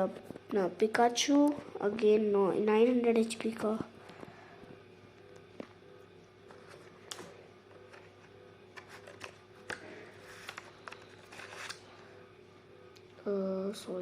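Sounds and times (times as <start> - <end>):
faint steady hum: 0.0 - 14.0
cards being flipped and slid: 6.5 - 11.9.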